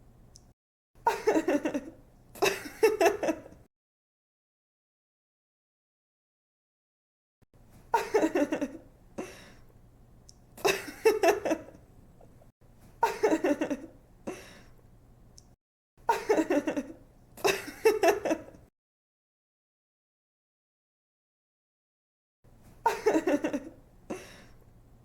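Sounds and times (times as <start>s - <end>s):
young woman laughing: 1.0s - 3.6s, 7.9s - 8.8s, 10.6s - 11.8s, 13.0s - 14.5s, 16.1s - 18.6s, 22.8s - 24.4s.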